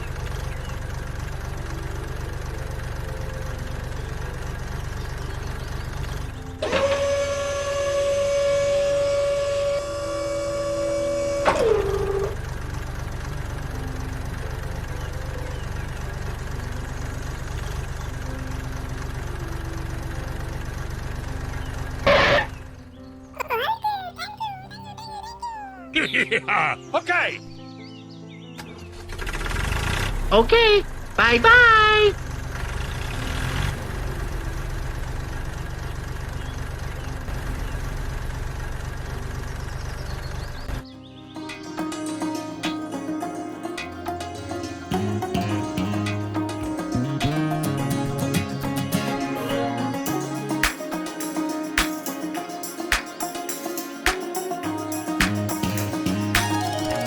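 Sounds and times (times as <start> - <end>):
engine idling: 0.0 - 23.0, 28.9 - 40.9, 43.1 - 57.0
held tone dropping in pitch: 6.6 - 12.4.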